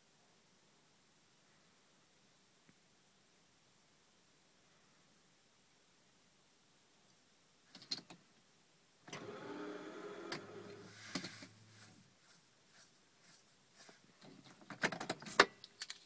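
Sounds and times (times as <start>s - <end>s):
car starter motor cranking: 9.1s - 11.6s.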